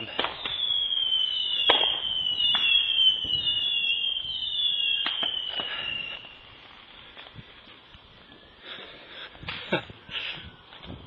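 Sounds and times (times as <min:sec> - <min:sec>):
firework cracks: 0:00.0 - 0:07.4
whistling fireworks: 0:00.0 - 0:11.0.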